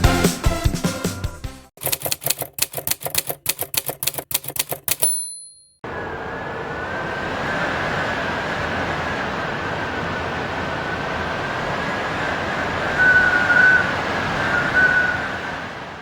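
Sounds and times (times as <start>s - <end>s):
typewriter keystroke clicks: 1.8s - 5.6s
typewriter bell ding: 1.8s - 5.8s.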